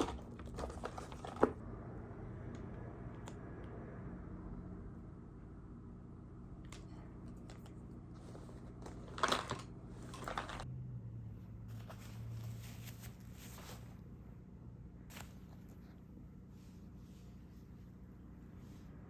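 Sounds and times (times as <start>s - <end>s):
rustling handling noises: 0.0s - 1.6s, 6.8s - 10.7s, 11.7s - 14.2s
low steady hum: 0.0s - 19.0s.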